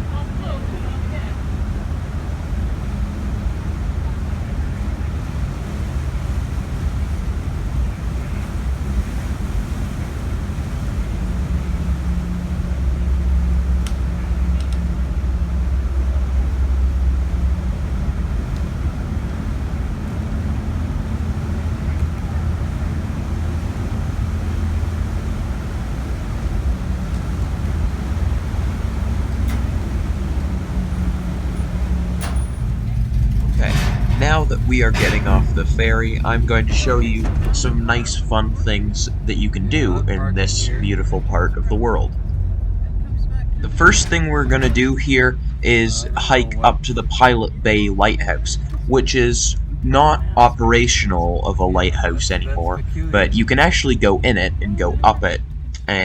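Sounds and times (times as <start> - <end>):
ferry engines rumbling: 0.0 - 56.0.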